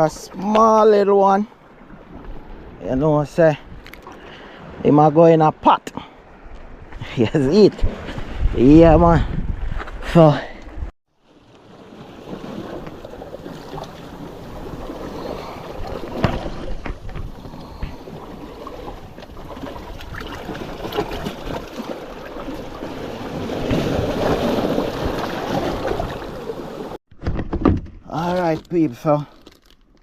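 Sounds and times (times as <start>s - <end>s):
moving water: 0.0s - 27.0s
wind buffeting microphone: 6.4s - 10.9s.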